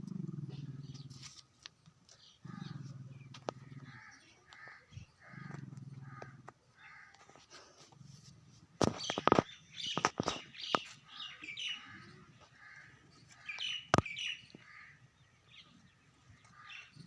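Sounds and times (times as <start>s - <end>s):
small birds chirping: 0.1s - 7.2s, 7.9s - 17.0s.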